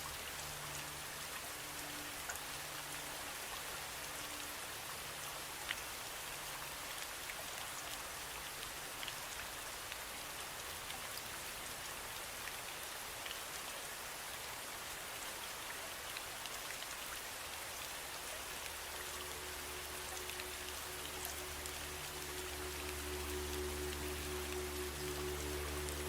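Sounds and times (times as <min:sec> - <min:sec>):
low steady tone: 0:00.0 - 0:06.7, 0:18.3 - 0:26.0
steady rain falling: 0:00.0 - 0:26.0.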